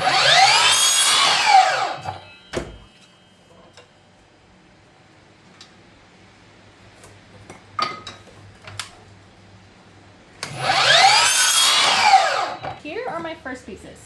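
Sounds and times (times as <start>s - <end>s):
chop saw motor whine: 0.0s - 3.9s, 10.4s - 13.2s.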